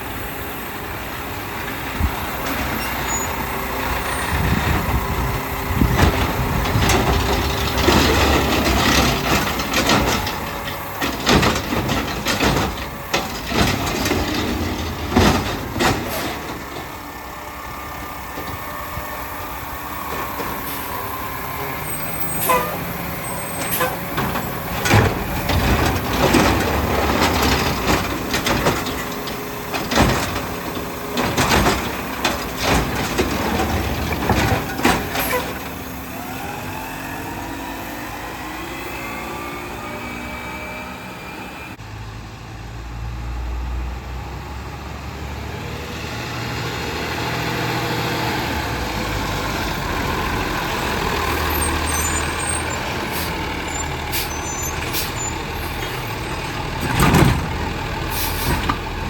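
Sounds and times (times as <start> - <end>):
hydraulics whining: 0.0 - 41.8, 46.8 - 59.0
garbage truck engine: 0.0 - 59.0
loud metallic clanks and bangs: 3.9 - 17.2, 20.0 - 36.0, 48.9 - 59.0.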